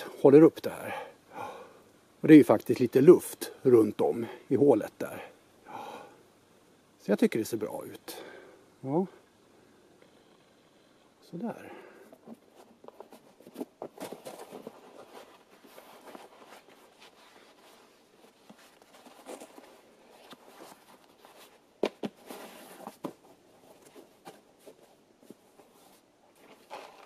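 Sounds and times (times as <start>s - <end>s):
faint rustling and shuffling: 10.2s - 27.0s.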